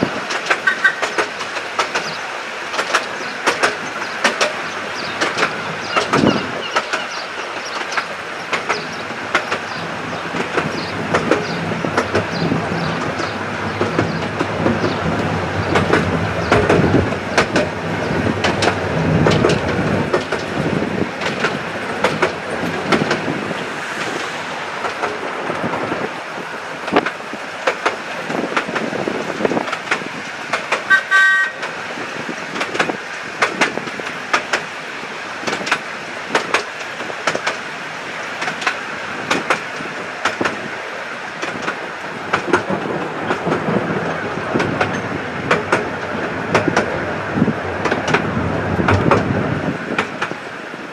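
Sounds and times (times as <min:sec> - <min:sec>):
train wheels clicking over rails: 0:00.0 - 0:50.9
train whistle toot: 0:30.9 - 0:31.6.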